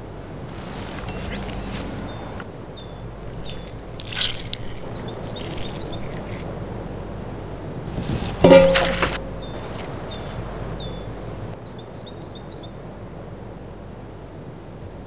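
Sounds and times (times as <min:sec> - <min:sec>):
songbird chirping: 0:00.0 - 0:06.5, 0:08.4 - 0:13.1
low background hiss: 0:00.0 - 0:15.0.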